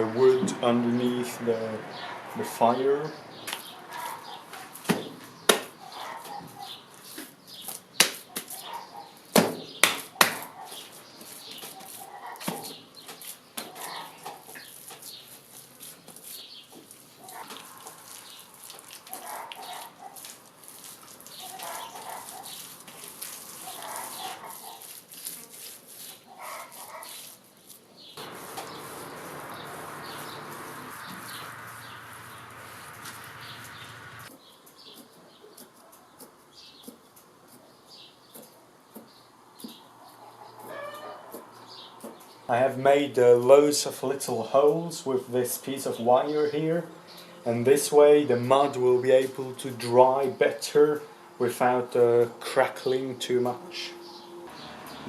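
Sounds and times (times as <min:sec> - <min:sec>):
wet mud slapped by hand: 0:09.4 - 0:10.5.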